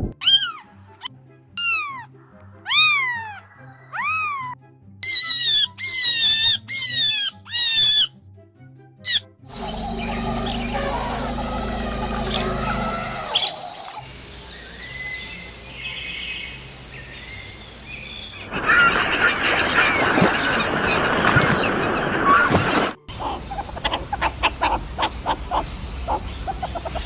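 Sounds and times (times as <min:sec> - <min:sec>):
farm fowl calling: 0:09.1 - 0:14.0.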